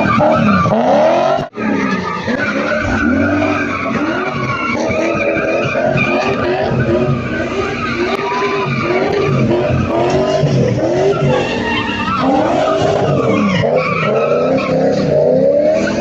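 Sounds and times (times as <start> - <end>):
car engine revving: 0.0 - 16.0
tyres squealing: 0.0 - 16.0.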